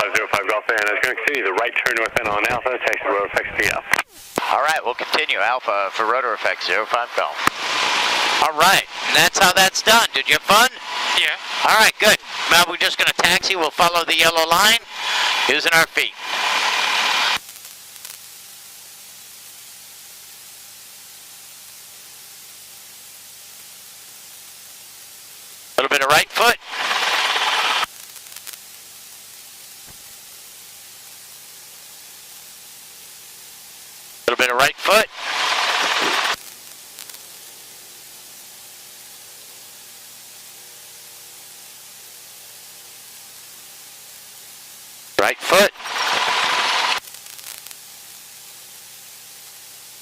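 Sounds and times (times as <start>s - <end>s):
intercom audio hiss: 0.0s - 17.4s, 25.8s - 28.6s, 34.2s - 37.4s, 45.1s - 47.8s.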